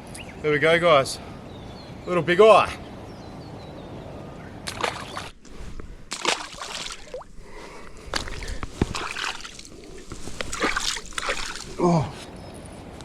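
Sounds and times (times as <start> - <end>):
shallow water sloshing and splashing: 4.6 - 12.0.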